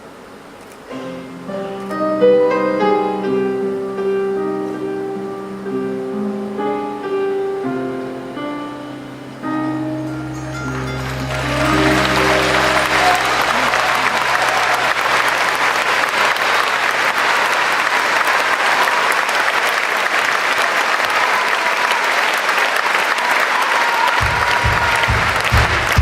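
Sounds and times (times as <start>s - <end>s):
band holding last chord: 9.6s - 16.0s
audience applauding: 10.1s - 26.0s.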